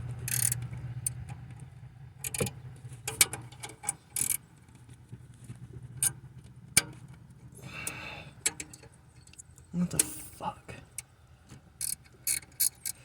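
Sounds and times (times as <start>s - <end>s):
wrench clicking against metal: 0.3s - 0.6s, 4.2s - 4.4s, 11.8s - 13.0s
wrench scraping: 0.3s - 0.6s, 11.8s - 13.0s.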